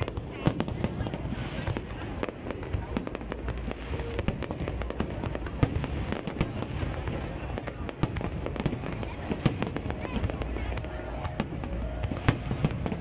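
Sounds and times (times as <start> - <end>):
firework bangs and crackles: 0.0 - 13.0.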